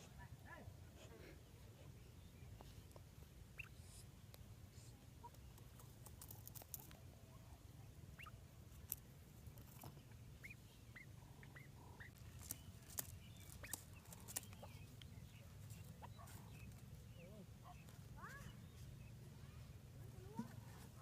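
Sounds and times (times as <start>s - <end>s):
faint bird chirps: 1.4s - 8.5s, 9.6s - 21.0s.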